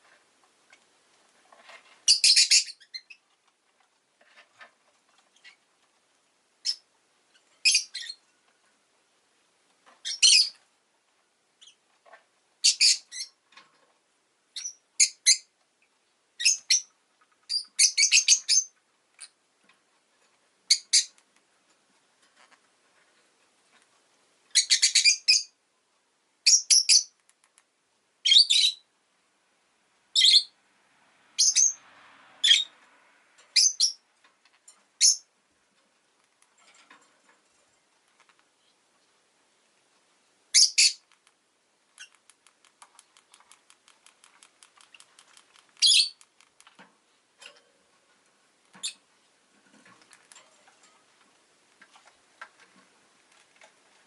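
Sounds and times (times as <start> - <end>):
lovebird chirping: 2.1 - 3.2, 6.6 - 8.2, 10.0 - 10.6, 12.6 - 13.4, 14.5 - 15.5, 16.4 - 16.9, 17.5 - 19.3, 20.7 - 21.2, 24.5 - 25.6, 26.4 - 27.2, 28.2 - 28.9, 30.1 - 30.6, 31.4 - 31.8, 32.4 - 32.7, 33.5 - 34.0, 35.0 - 35.3, 40.5 - 41.2, 41.9 - 42.3, 44.8 - 46.3, 48.8 - 49.1.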